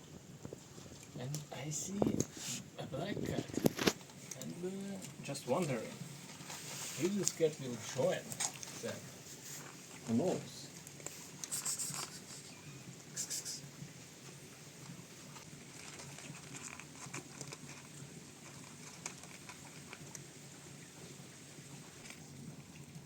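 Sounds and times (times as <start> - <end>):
rain pattering: 0.0 - 23.0
cats crunching dry food: 0.2 - 13.1, 13.9 - 23.0
short noisy bursts: 11.4 - 12.5.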